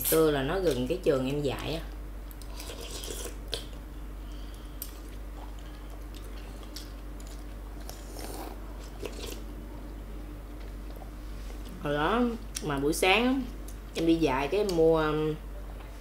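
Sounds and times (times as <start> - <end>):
faint steady hum: 0.0 - 16.0
chewing and wet mouth smacks: 4.9 - 9.4.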